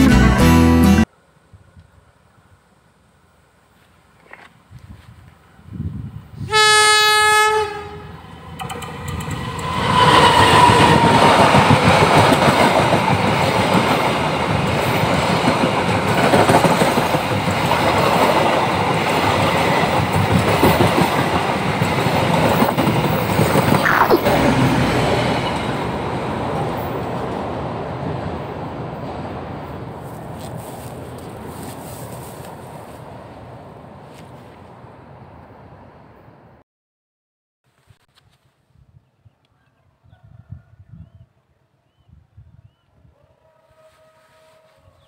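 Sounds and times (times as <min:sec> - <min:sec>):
locomotive horn blast: 0:06.4 - 0:08.2, 0:43.4 - 0:45.0
train wheels rolling on rails: 0:08.2 - 0:33.4.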